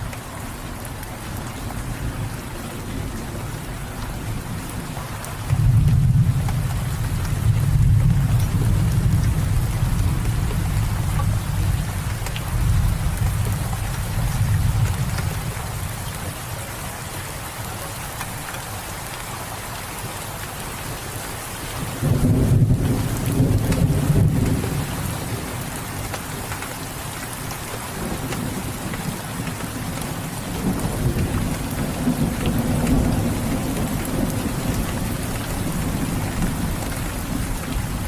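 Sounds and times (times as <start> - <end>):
steady rain: 0.0 - 38.0
low rumble of thunder: 1.8 - 16.7, 21.8 - 26.4, 27.8 - 38.0.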